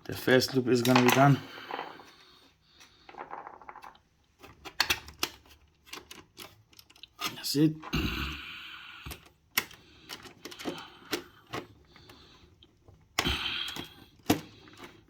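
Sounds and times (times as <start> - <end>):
wire and tools clicking: 9.0 - 15.0.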